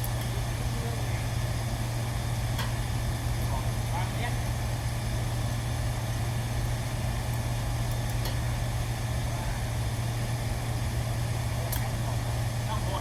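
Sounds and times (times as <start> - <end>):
steady low machine hum: 0.0 - 13.0.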